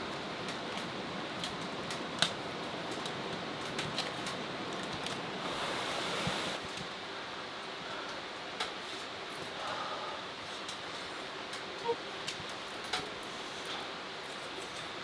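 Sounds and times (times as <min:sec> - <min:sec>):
firewood crackling and popping: 0:00.0 - 0:07.1
steady hiss of fire: 0:00.0 - 0:15.0.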